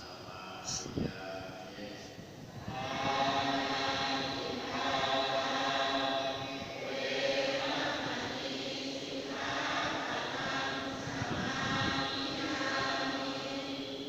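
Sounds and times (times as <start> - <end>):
group chanting in unison: 0.0 - 14.0.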